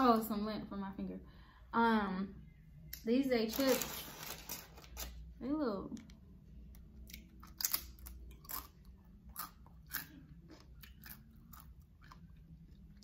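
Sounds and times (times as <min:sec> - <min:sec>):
tortilla chip crunching: 0:06.8 - 0:13.0.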